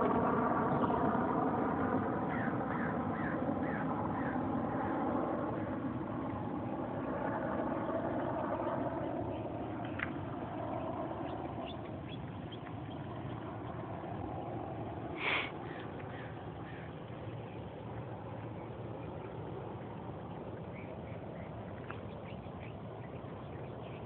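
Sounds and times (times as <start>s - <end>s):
low rumbling noise: 0.0s - 24.0s
bird chirps: 11.2s - 13.8s.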